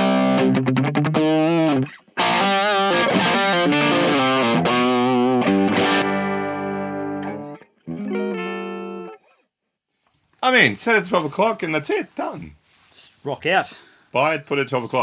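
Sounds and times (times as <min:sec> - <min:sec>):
overdriven electric guitar riff: 0:00.0 - 0:09.4.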